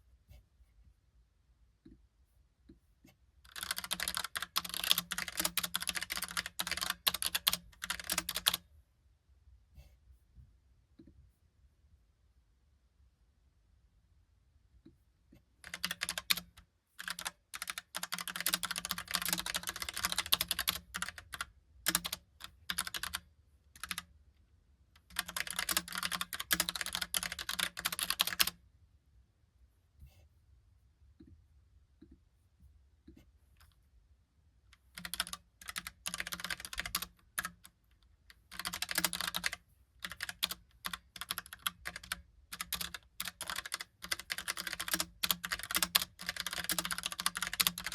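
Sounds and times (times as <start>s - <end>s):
mechanical keyboard typing: 3.5s - 8.6s, 15.6s - 23.2s, 23.8s - 24.1s, 25.0s - 28.6s, 34.8s - 37.8s, 38.4s - 47.9s.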